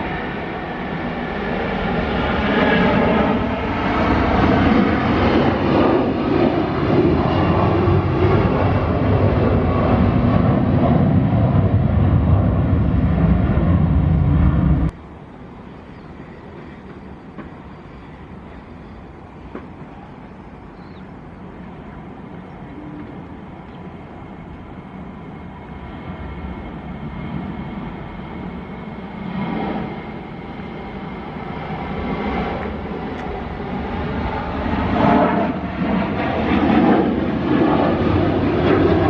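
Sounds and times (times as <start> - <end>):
jet engines running: 0.0 - 39.0
steady background noise: 14.9 - 36.3.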